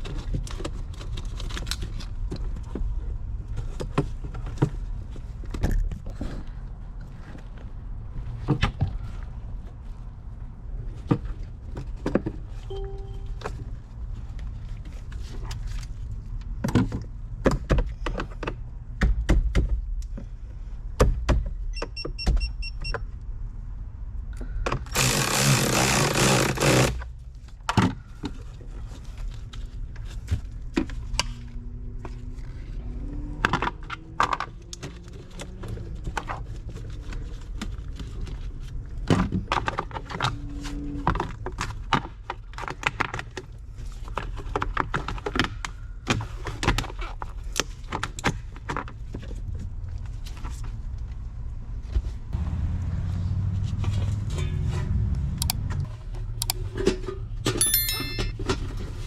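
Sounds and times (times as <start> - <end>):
low steady hum: 12.5 - 16.4
clinks of tools and metal parts: 56.4 - 59.0.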